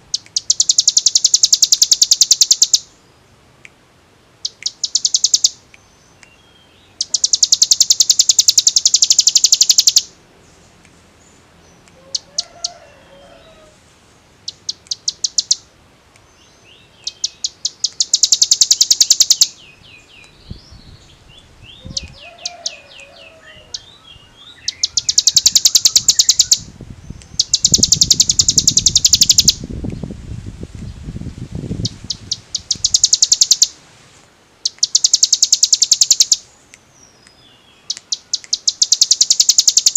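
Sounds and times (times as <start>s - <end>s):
bird singing fast trills: 0.1s - 3.0s, 4.4s - 10.2s, 14.4s - 15.7s, 16.3s - 30.0s, 31.8s - 33.8s, 34.6s - 39.9s.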